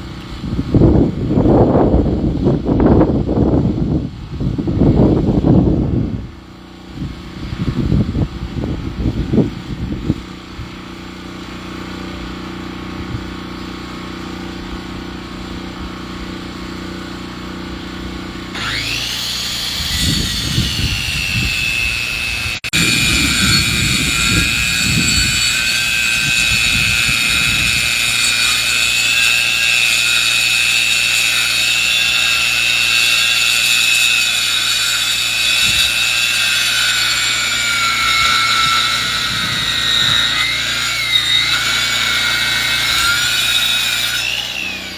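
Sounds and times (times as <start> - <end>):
saw whining through wood: 10.8 - 44.9.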